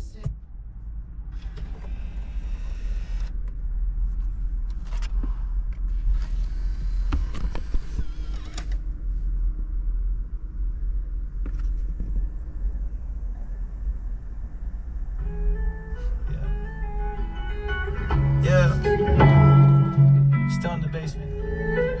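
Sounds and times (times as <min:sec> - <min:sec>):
car cabin low rumble: 0:00.0 - 0:22.0
clicks and creaks: 0:04.6 - 0:08.8.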